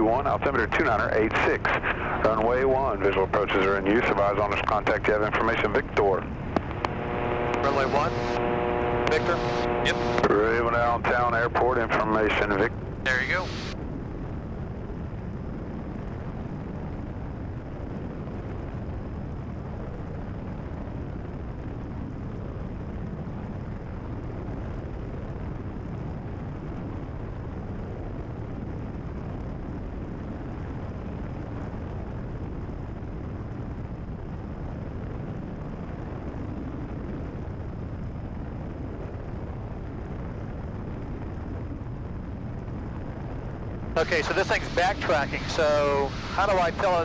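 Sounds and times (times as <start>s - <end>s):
aircraft engine and propeller drone: 0.0s - 15.0s, 38.7s - 47.0s.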